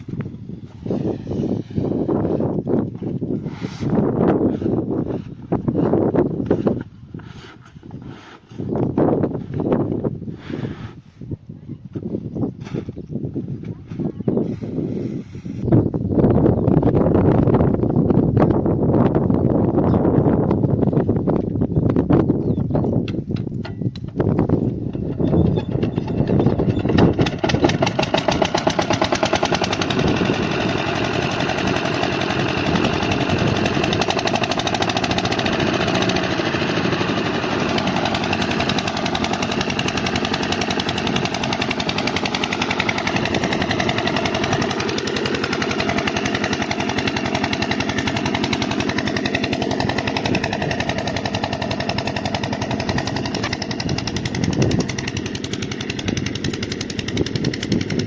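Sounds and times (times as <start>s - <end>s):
diesel pump engine thumping: 22.9s - 58.0s.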